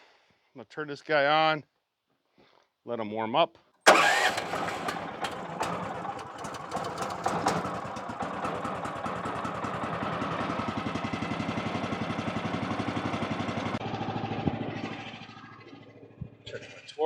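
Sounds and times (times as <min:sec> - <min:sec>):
engine knocks: 0:03.9 - 0:13.8
small gasoline engine idling: 0:03.9 - 0:16.0.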